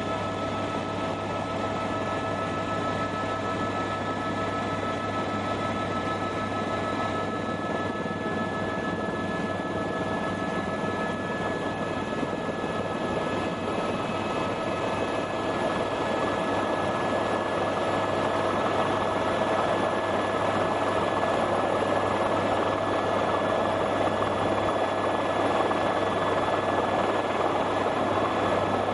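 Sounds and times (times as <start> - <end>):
constant high whine: 0.0 - 28.9
helicopter engine and rotor noise: 0.0 - 28.9.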